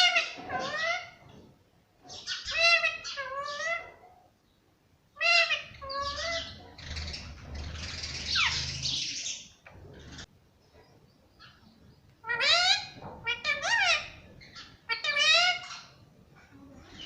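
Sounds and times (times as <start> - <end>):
parakeet calling: 2.1 - 3.9, 5.1 - 10.3, 12.2 - 16.0.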